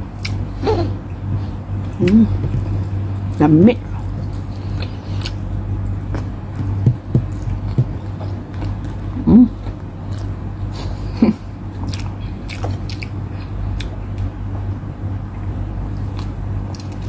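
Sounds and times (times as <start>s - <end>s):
steady low hum: 0.0s - 17.0s
person chewing with mouth smacks: 0.2s - 0.4s, 3.8s - 10.4s, 11.8s - 14.3s, 16.0s - 17.0s.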